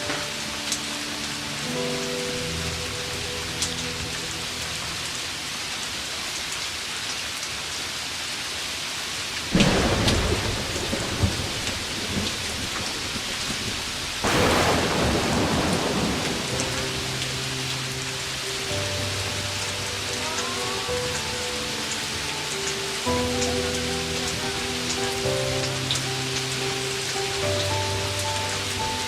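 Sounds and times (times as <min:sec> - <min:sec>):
heavy rain hissing: 0:00.0 - 0:29.0
thunder: 0:09.5 - 0:17.2.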